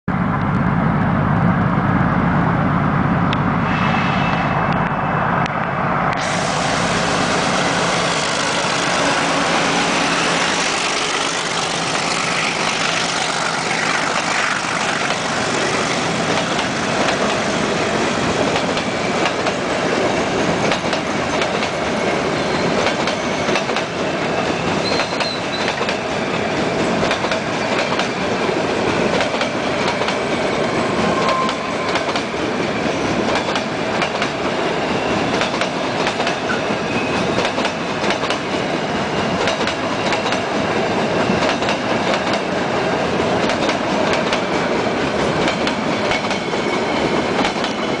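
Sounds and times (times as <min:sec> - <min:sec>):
train wheels clattering over rail joints: 0:07.8 - 0:30.4, 0:33.0 - 0:34.5, 0:35.1 - 0:42.6, 0:43.4 - 0:48.0.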